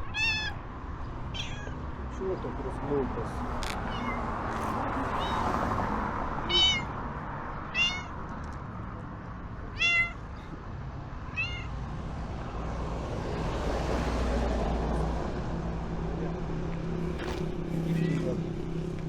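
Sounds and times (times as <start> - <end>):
cat meowing loudly: 0.0 - 0.6, 1.3 - 1.8, 3.6 - 4.3, 5.0 - 5.6, 6.4 - 7.0, 7.7 - 8.2, 9.7 - 10.2, 11.3 - 11.8, 17.8 - 18.4.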